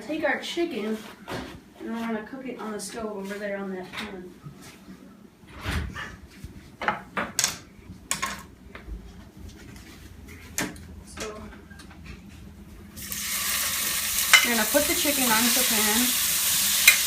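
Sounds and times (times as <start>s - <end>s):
chicken sizzling in a pan: 13.0s - 17.0s.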